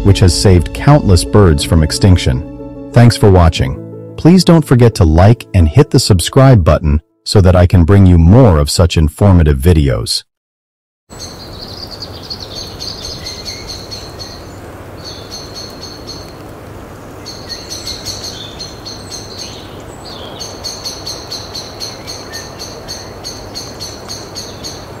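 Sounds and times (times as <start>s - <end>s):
outdoor background hiss: 11.1s - 25.0s.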